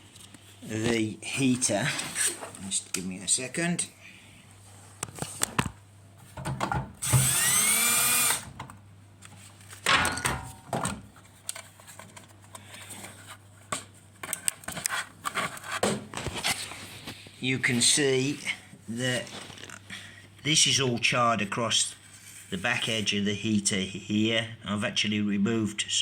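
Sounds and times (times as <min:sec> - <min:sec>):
cordless drill whining: 0:07.0 - 0:08.5.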